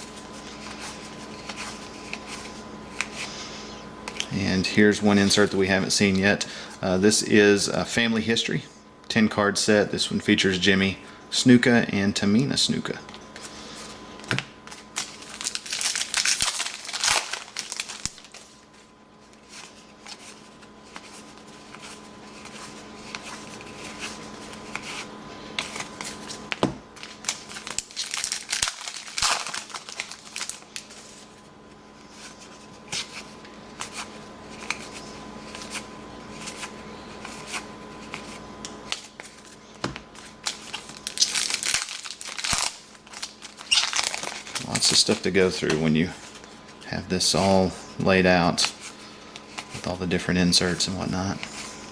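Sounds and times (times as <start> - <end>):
faint steady hum: 0.0 - 51.9
cards rustling and tapping: 0.1 - 3.4, 4.0 - 4.3, 13.1 - 31.3, 32.0 - 46.8
wrappers crinkling and tearing: 13.4 - 31.4, 32.1 - 51.8.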